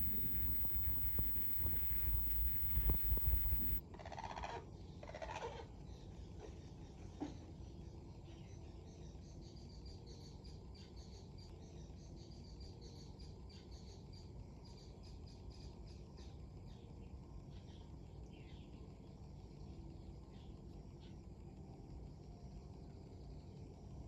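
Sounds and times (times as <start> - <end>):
birds chirping: 0.0 - 3.8
wind rumble: 0.0 - 3.8.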